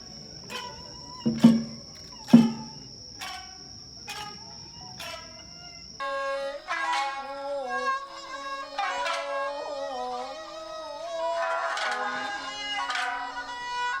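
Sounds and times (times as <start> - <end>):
taiko drum strokes: 0.0 - 4.4
shamisen plucking: 0.0 - 5.4.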